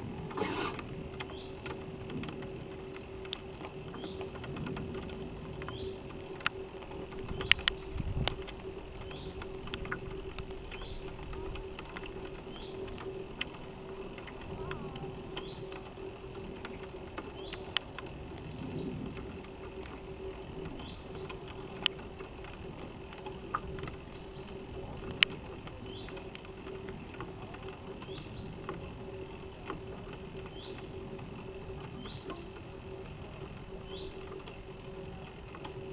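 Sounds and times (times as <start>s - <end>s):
electrical hum: 0.0s - 35.9s
water washing along hull: 0.0s - 35.9s.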